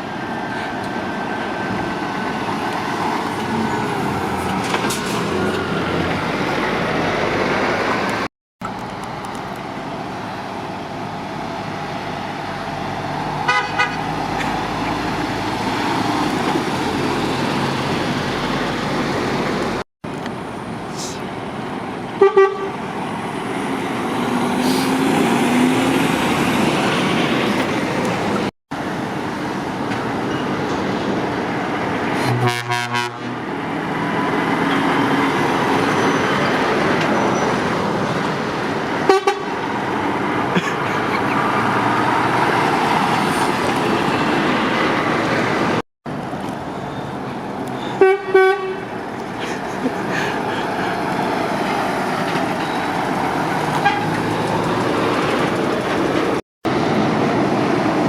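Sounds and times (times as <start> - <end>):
lorries passing: 0.0 - 58.0
truck horn toots: 13.4 - 14.1, 22.2 - 22.8, 32.2 - 33.4, 39.1 - 39.5, 47.9 - 48.9, 53.8 - 54.2.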